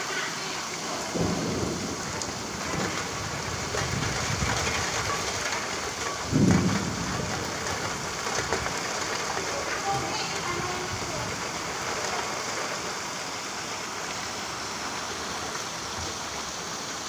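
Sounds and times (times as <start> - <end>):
steady rain falling: 0.0 - 17.0
thunder rumbling: 0.7 - 15.4.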